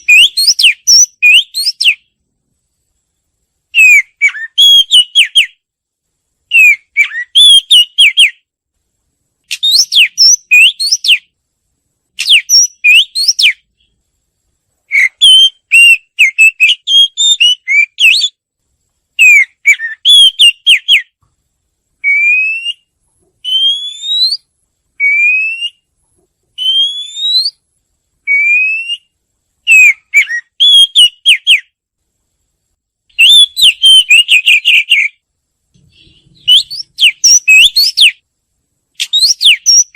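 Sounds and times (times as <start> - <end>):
bird singing whistled notes: 0.0 - 2.2, 3.8 - 5.6, 6.5 - 8.5, 9.5 - 11.3, 12.2 - 13.9, 14.9 - 18.4, 19.2 - 21.2, 22.0 - 25.9, 26.6 - 27.6, 28.3 - 31.8, 33.1 - 35.2, 35.8 - 38.2, 39.0 - 39.9.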